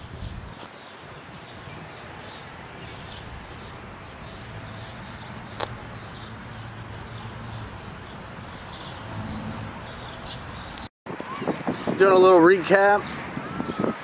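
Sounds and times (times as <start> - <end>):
birds chirping: 0.0 - 10.9.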